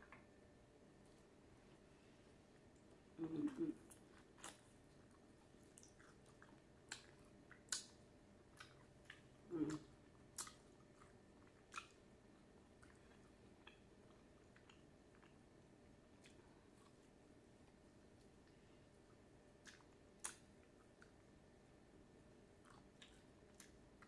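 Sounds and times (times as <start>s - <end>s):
chewing: 2.8s - 15.5s, 16.2s - 21.3s, 22.6s - 24.0s
low mouth sounds: 3.2s - 4.0s, 9.5s - 10.5s.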